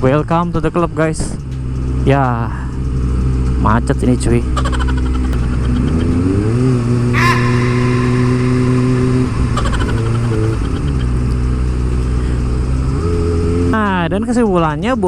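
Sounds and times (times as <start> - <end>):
motorcycle engine running: 1.2 - 14.8
short high squeal: 7.0 - 12.4.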